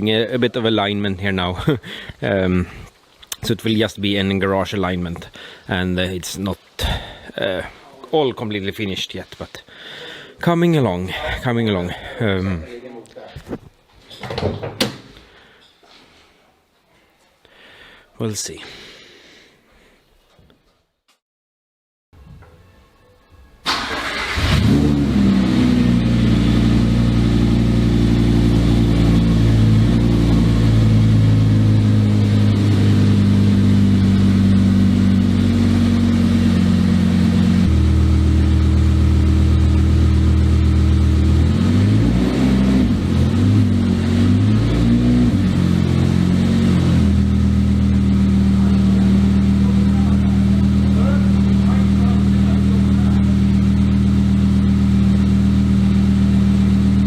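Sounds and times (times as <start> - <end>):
race car engine starting and idling: 23.6 - 57.0
engine revving: 23.7 - 57.0.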